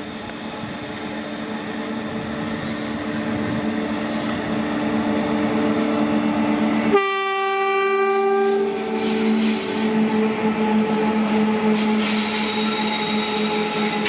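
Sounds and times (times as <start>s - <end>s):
locomotive hum: 0.0s - 14.0s
train horn blast: 6.9s - 12.1s.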